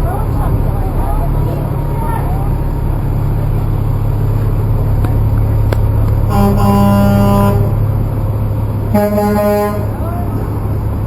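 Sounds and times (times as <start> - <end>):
truck engine rumbling: 0.0 - 11.0
truck horn two-tone chord: 6.3 - 7.8, 8.9 - 10.0.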